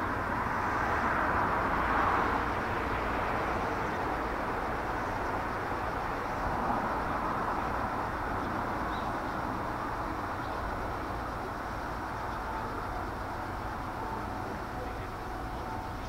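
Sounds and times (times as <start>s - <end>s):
electric train running: 4.1s - 16.0s.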